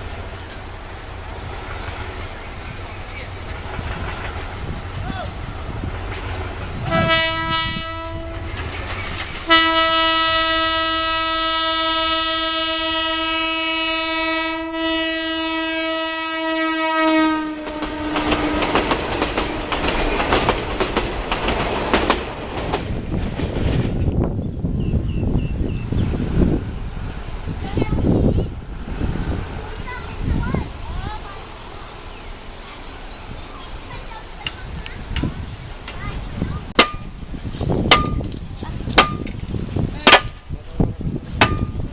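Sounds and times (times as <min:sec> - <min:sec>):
train wheels clattering over rails: 0:00.0 - 0:10.1, 0:17.6 - 0:24.4, 0:33.8 - 0:40.6, 0:41.2 - 0:41.9
train horn blasts: 0:06.8 - 0:08.6, 0:09.4 - 0:19.9.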